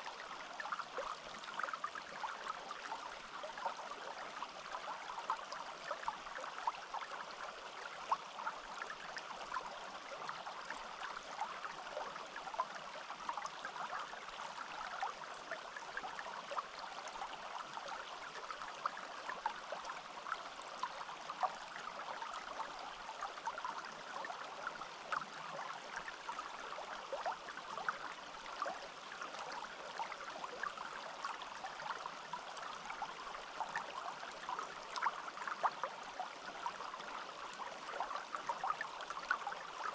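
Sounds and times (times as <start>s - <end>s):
forest stream babbling: 0.0s - 39.9s.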